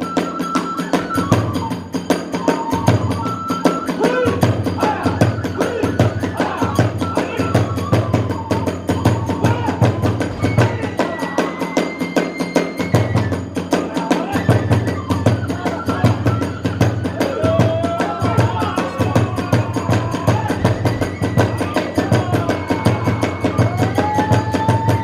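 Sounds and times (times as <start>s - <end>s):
bamboo flute melody: 0.0s - 25.0s.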